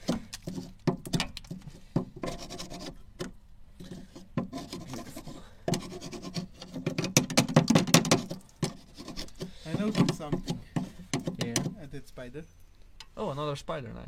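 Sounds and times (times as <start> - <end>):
scraping on rusty metal: 0.0 - 13.1.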